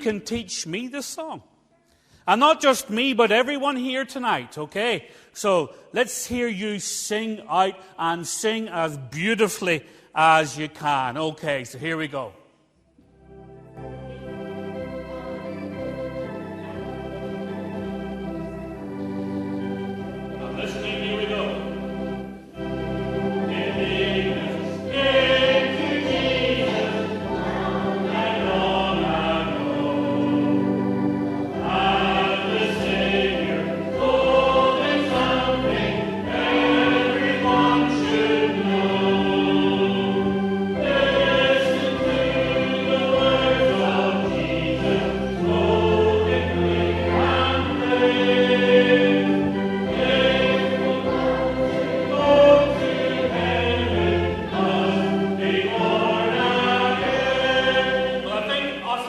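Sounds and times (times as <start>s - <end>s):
organ playing bass notes: 13.0s - 59.0s
children and congregation singing: 13.9s - 59.0s.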